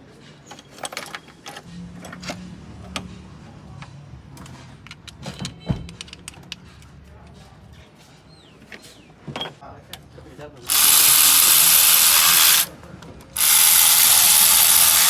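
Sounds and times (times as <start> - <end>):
metal tools clinking: 0.4 - 2.3.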